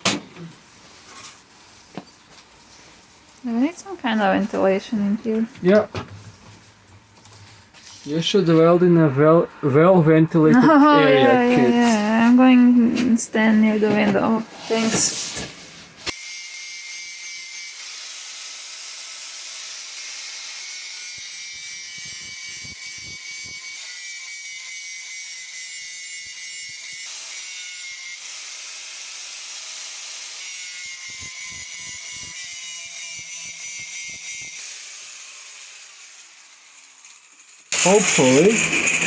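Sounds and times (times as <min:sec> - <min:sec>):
angle grinder grinding steel: 0:16.1 - 0:39.0.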